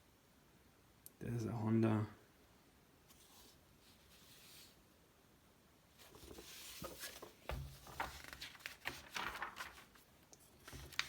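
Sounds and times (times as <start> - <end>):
magazine pages turning: 6.0 - 11.0.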